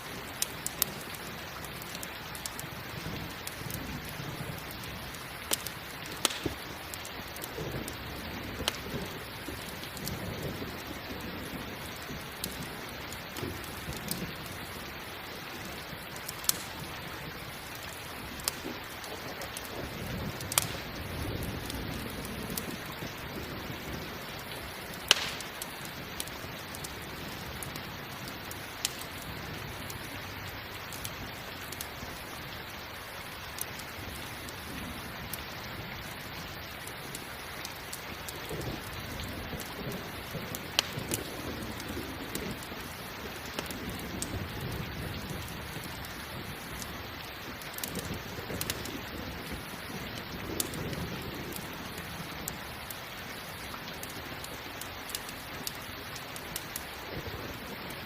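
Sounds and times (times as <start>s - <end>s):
campfire crackling and popping: 0.0s - 58.0s
steady rain: 0.0s - 58.0s
distant thunder rumbling: 15.7s - 27.7s.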